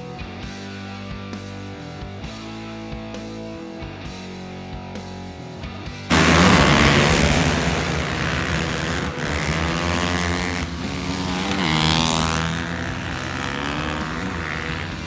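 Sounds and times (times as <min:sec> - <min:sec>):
racing engines revving: 0:06.1 - 0:15.0.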